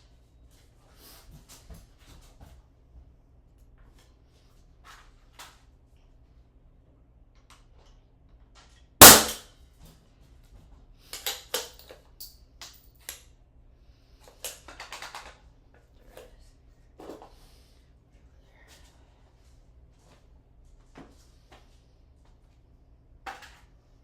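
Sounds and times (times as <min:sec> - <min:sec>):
nail gun firing bang: 0:09.0 - 0:09.4.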